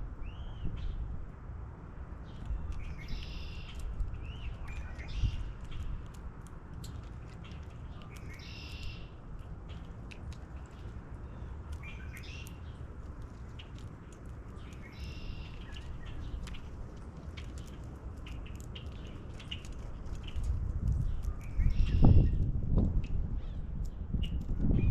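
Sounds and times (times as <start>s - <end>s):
low outdoor rumble: 0.0s - 24.9s
small bird chirps: 2.3s - 6.1s, 7.4s - 9.8s, 10.6s - 12.8s, 14.5s - 16.7s, 17.4s - 22.4s
high bird calls: 2.4s - 5.9s, 7.8s - 9.2s, 10.6s - 12.8s, 14.6s - 16.6s, 21.4s - 22.4s.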